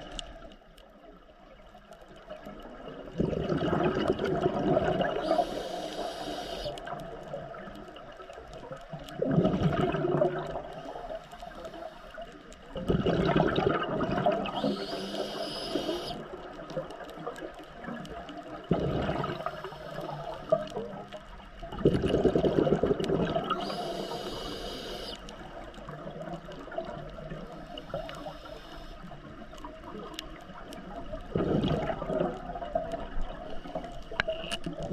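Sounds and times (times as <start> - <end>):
exhaled bubbles rumbling underwater: 0.0 - 34.9
faint steady crackle: 0.0 - 34.9
hissing inhale: 5.1 - 6.8, 10.8 - 12.3, 14.5 - 16.2, 19.3 - 20.7, 23.5 - 25.3, 27.7 - 29.1.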